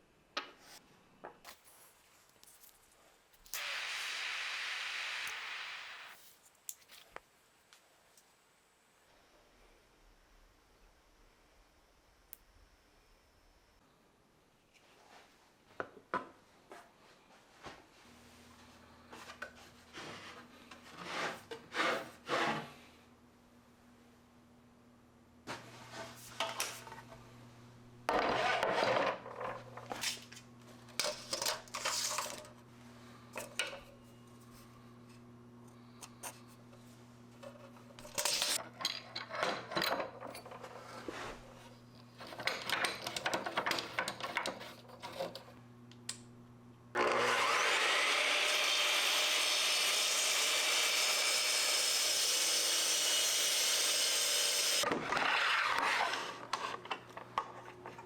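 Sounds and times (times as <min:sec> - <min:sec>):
hand scraping and sawing wood: 0:19.1 - 0:22.9
power tool carving wood: 0:47.0 - 0:54.8.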